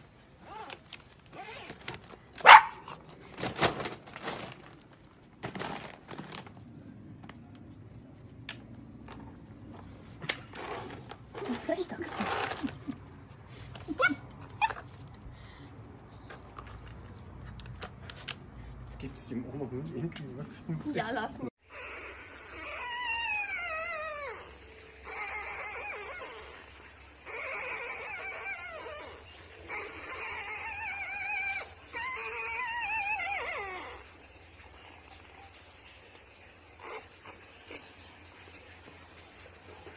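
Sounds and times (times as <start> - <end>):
dog yelping: 0.4 - 3.0, 13.8 - 15.0, 21.6 - 34.2.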